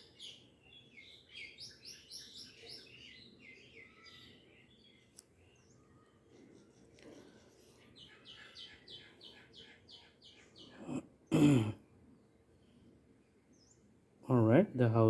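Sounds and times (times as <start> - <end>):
bird chirping: 0.0 - 11.4, 12.1 - 14.6.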